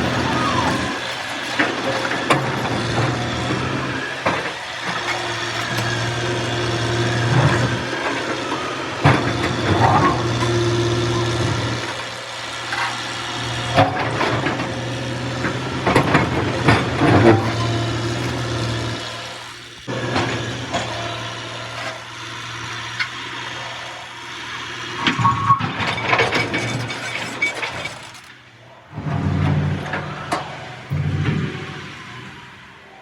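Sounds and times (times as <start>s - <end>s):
knocks and clanks: 0.0s - 12.0s, 12.7s - 18.6s, 25.0s - 32.5s
heavy diesel engine running: 0.0s - 33.0s.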